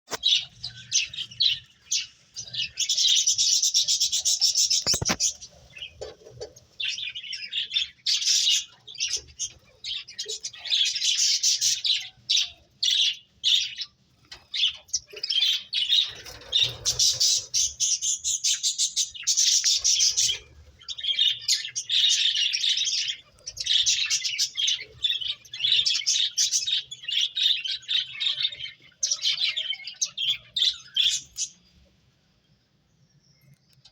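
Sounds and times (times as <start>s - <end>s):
finches chirping: 0.1s - 31.8s.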